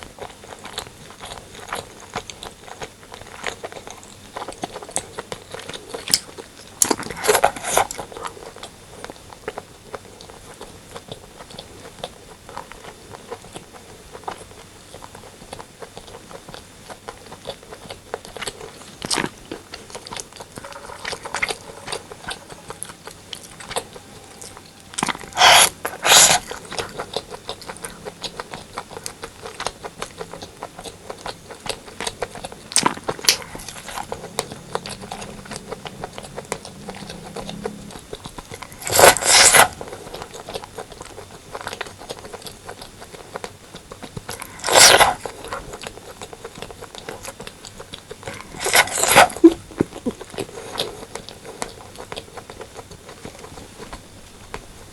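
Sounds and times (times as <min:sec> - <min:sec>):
mouth chewing food: 0:00.0 - 0:54.9
noisy bursts: 0:32.1 - 0:40.0.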